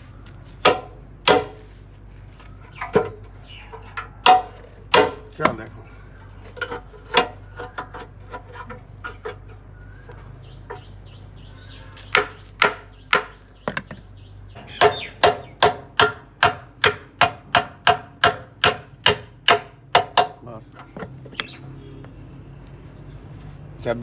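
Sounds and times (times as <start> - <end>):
hammer striking metal: 0.7 - 1.6, 4.2 - 5.7, 12.0 - 13.4, 14.8 - 20.4.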